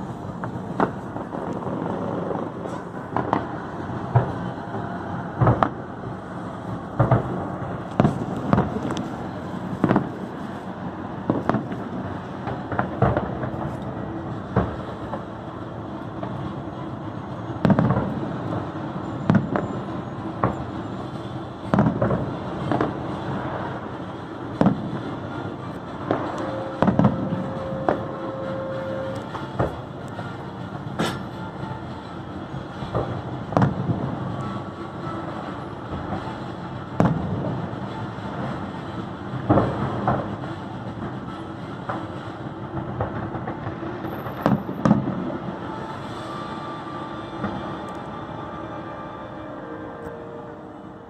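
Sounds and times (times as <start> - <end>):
background rumble: 0.0 - 48.5
fireworks bangs: 0.0 - 49.1
steady tone: 23.2 - 51.0.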